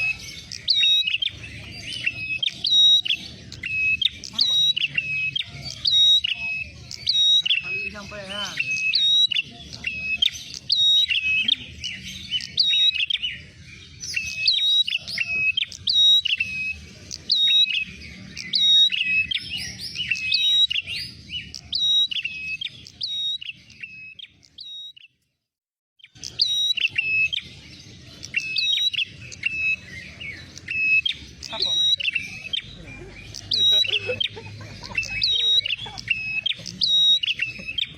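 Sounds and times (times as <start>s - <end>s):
bird sharp high chirps: 0.0s - 25.2s, 26.0s - 37.9s.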